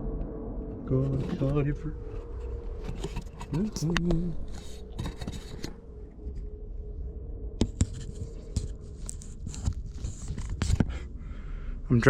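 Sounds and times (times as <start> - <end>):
faint steady hum: 0.0 - 12.0
small clicks taps and scrapes: 2.3 - 5.8, 7.6 - 10.9.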